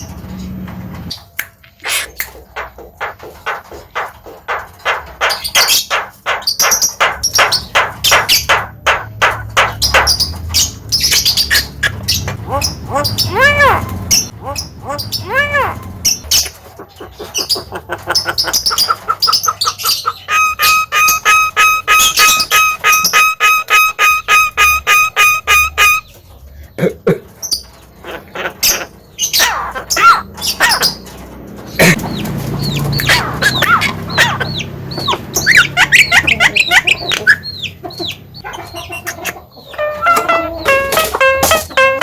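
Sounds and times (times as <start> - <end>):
myna squawking: 1.8 - 6.4, 11.4 - 26.1, 28.0 - 31.0, 31.8 - 42.0
bird beeping notes: 20.1 - 26.2, 39.7 - 42.0
myna whistled notes: 20.3 - 26.1.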